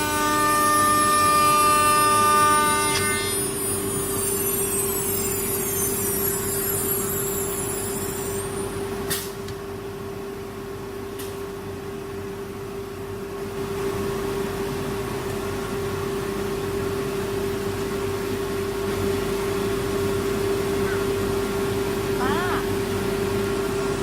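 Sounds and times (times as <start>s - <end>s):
router spindle whine: 0.0s - 8.4s.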